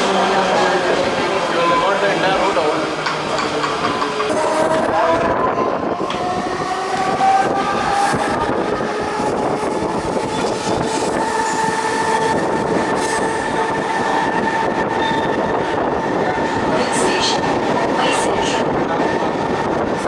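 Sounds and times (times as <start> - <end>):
electric train whine: 0.0 - 20.0
rail and wheel noise: 0.0 - 20.0.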